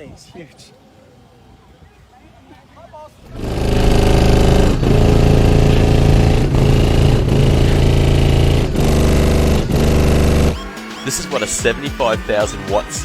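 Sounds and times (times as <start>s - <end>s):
bass-heavy music from car subwoofer: 4.4s - 13.0s.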